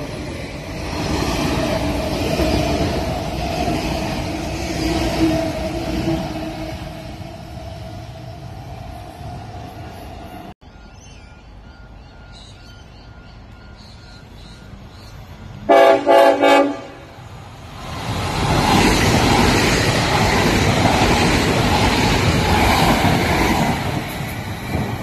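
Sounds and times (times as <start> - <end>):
train rushing past: 0.0 - 25.0
train horn blasts: 15.6 - 17.2.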